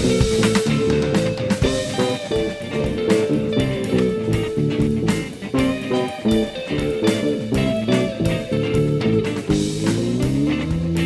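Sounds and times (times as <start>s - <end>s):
drum kit cymbal and drum hits: 0.0s - 11.0s
electric guitar sliding notes: 0.0s - 11.0s
fretless bass: 0.0s - 11.0s.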